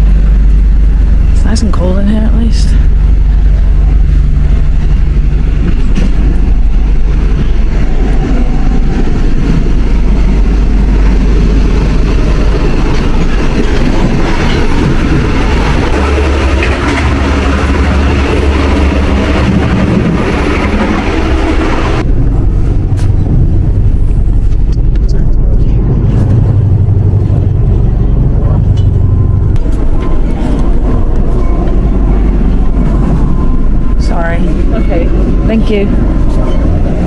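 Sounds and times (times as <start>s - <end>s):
train rumbling and rattling: 0.0s - 37.0s.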